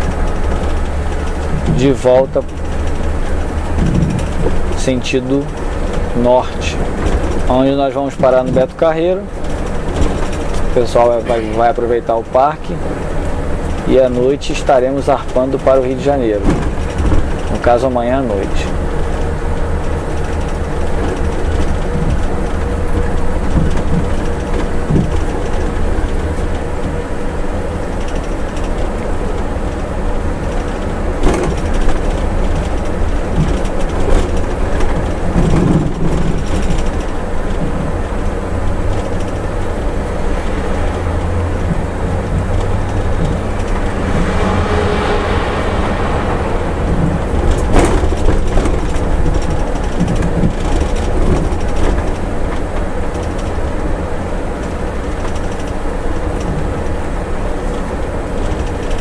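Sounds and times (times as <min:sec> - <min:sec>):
coach engine and road rumble: 0:00.0 - 0:59.0
rattles: 0:00.0 - 0:59.0
rush of noise: 0:10.3 - 0:14.7, 0:40.0 - 0:51.6.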